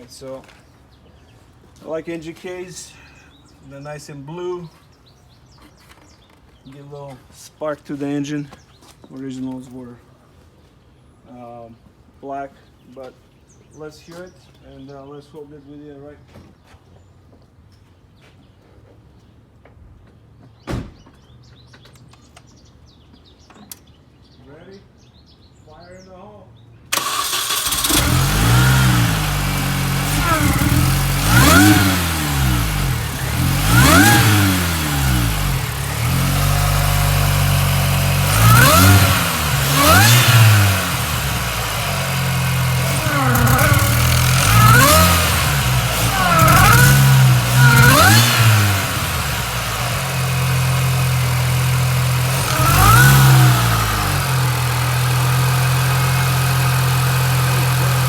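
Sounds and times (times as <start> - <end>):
car engine revving: 27.0 - 58.0.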